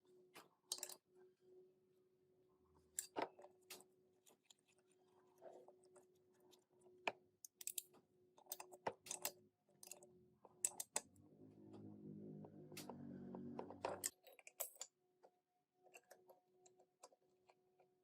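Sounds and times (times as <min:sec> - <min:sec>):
music: 0:10.0 - 0:14.3.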